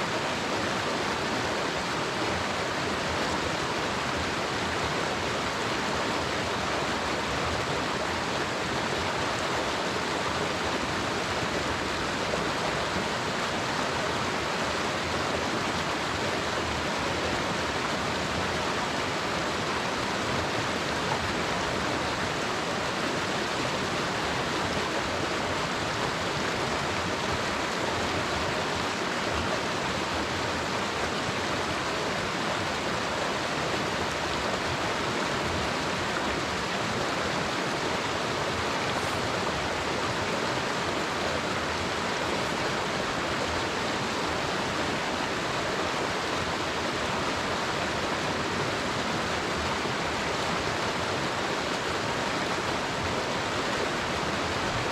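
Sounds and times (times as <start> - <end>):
creek rushing over rocks: 0.0 - 54.9.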